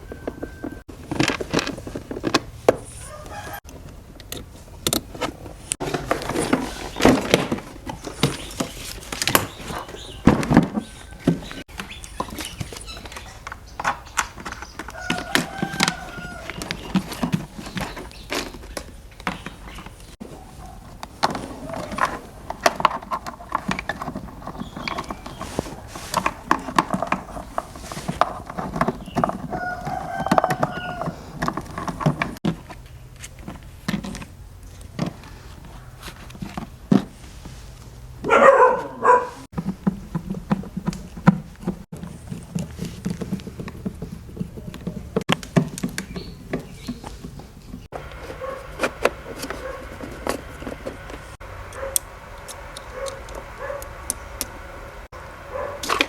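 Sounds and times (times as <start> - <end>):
chickens calling: 0.0 - 0.8, 2.8 - 3.7, 5.8 - 32.4, 38.2 - 39.7, 45.9 - 56.0
clicks and knocks of hand work: 39.1 - 53.4.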